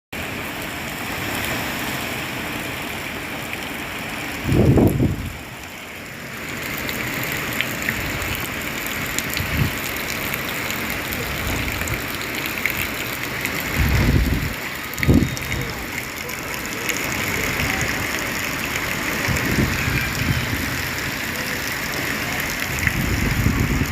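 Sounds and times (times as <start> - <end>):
heavy rain hiss: 0.2 - 23.9
wind buffeting: 4.4 - 5.5, 9.3 - 9.8, 13.7 - 15.8, 19.2 - 21.0, 22.6 - 23.9.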